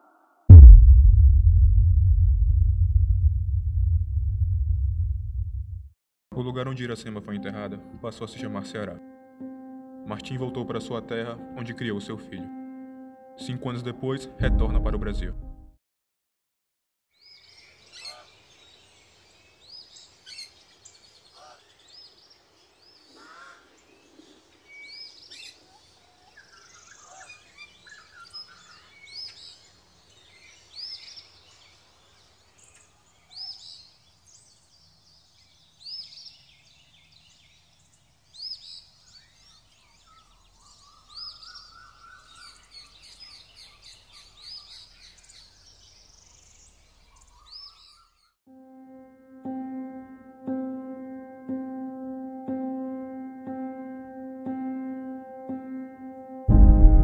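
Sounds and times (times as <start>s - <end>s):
quiet bird calls: 17.2s - 48.4s.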